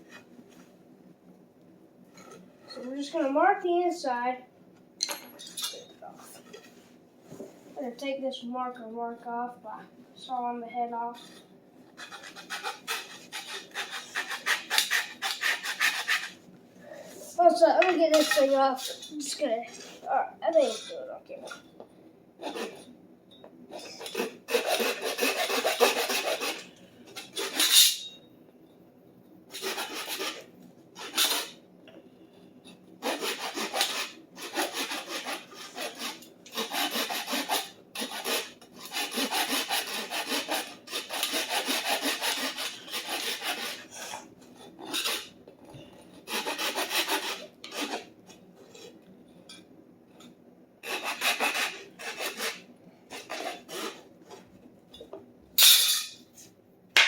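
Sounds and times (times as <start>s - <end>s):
rough rasping scrubbing on metal: 12.0s - 16.4s, 23.8s - 28.2s, 29.5s - 31.6s, 33.0s - 45.4s, 46.2s - 49.0s, 50.8s - 54.0s.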